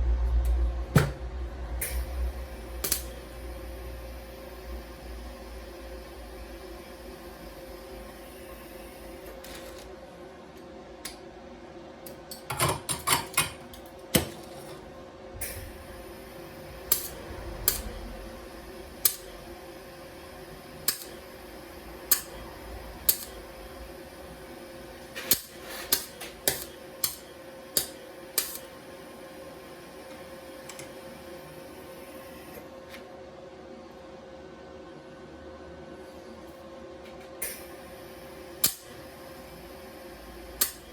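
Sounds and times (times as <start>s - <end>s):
welding machine humming: 0.1s - 11.4s, 12.0s - 32.7s, 37.1s - 40.9s.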